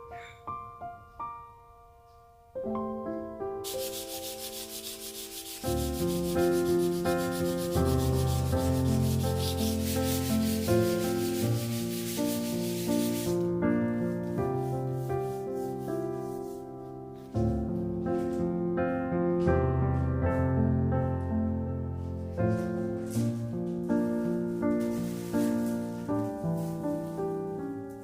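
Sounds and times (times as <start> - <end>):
background music: 0.0 - 28.0
wood being sanded: 3.6 - 13.4.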